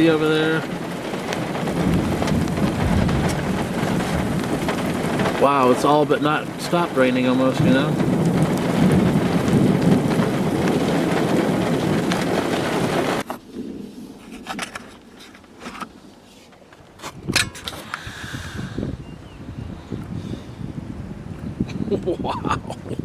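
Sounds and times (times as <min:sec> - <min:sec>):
rain and wind on microphone: 0:00.0 - 0:23.0
sharp clicks and crackles: 0:00.6 - 0:07.2.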